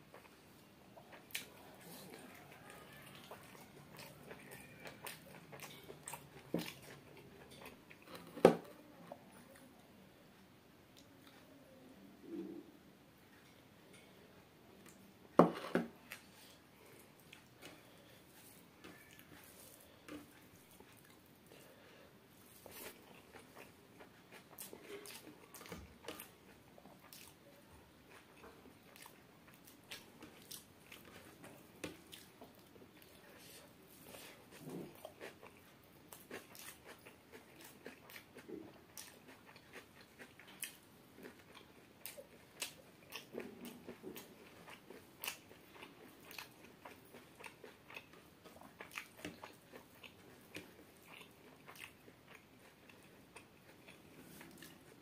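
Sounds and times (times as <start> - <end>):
person chewing with mouth clicks: 1.0 - 8.4, 22.5 - 55.0.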